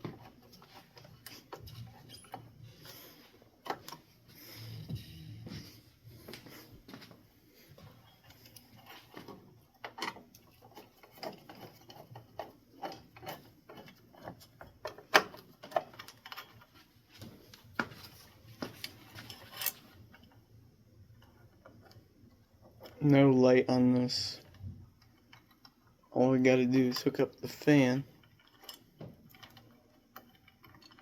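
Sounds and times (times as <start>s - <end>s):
small hardware clicks and clinks: 18.8s - 20.3s, 26.8s - 31.0s.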